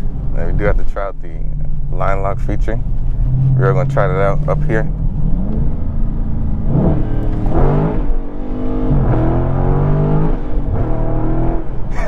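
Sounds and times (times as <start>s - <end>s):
car engine revving hard: 3.2s - 12.0s.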